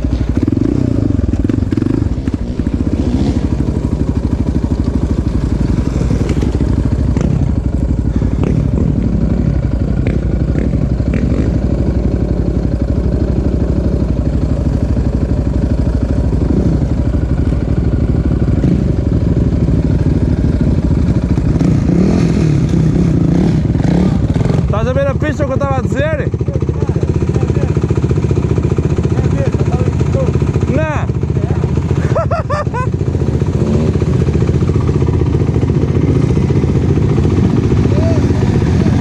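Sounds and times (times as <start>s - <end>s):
off-road engine revving: 0.0s - 39.0s.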